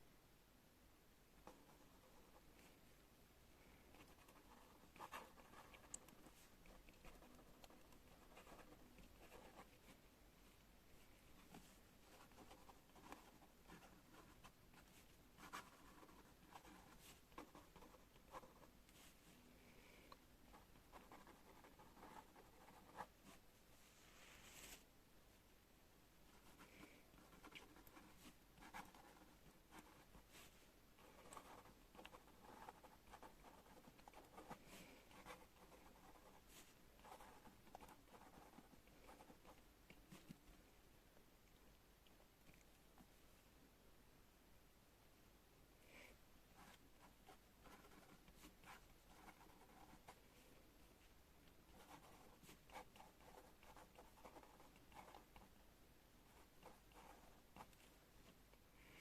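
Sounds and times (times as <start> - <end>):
pen scratching on paper: 3.9 - 10.0, 11.5 - 18.7, 20.5 - 23.4, 26.3 - 40.4, 46.6 - 50.2, 51.6 - 55.5, 56.3 - 57.8.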